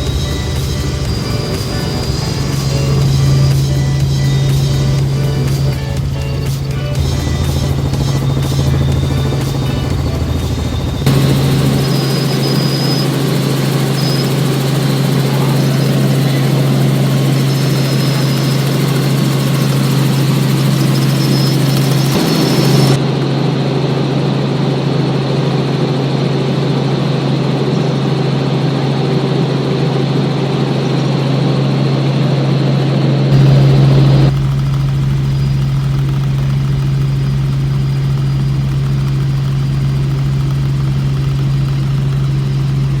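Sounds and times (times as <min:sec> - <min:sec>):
constant low hum: 0:00.0 - 0:23.4, 0:33.3 - 0:43.0
helicopter engine and rotor drone: 0:00.0 - 0:43.0.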